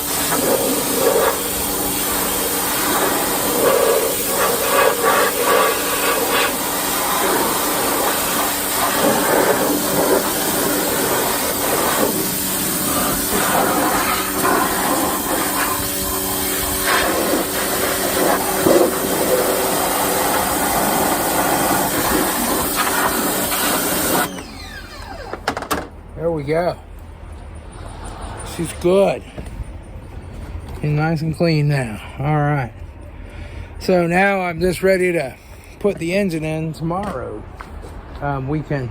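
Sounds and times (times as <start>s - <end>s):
pressure washer water jet spraying: 0.0s - 25.4s
pump humming: 0.0s - 25.7s.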